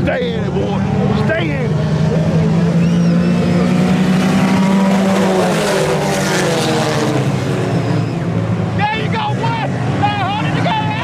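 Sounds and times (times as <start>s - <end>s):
race car engines at high revs: 0.0s - 11.0s.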